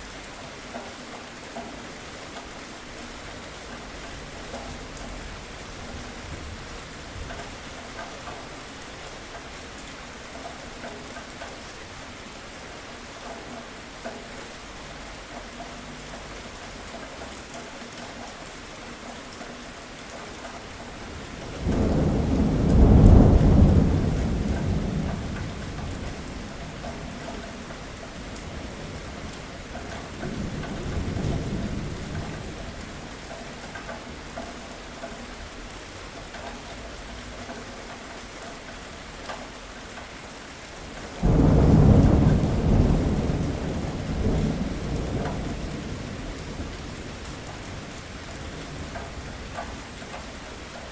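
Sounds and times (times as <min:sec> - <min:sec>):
steady rain: 0:00.0 - 0:50.9
thunder rolling: 0:21.4 - 0:27.2, 0:41.2 - 0:48.0.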